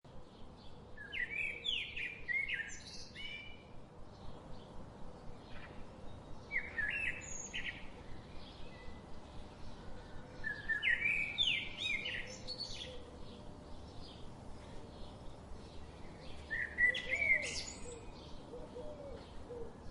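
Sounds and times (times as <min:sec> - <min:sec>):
soft bird chirps: 0:04.2 - 0:19.9.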